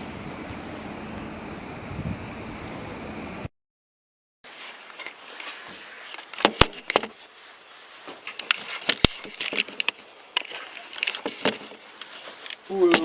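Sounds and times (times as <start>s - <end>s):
objects rustling: 4.5s - 13.0s.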